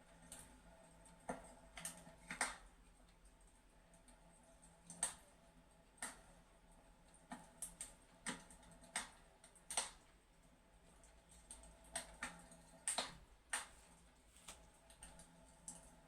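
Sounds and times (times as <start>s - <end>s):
fireplace crackling: 7.4s - 10.2s, 11.1s - 15.8s.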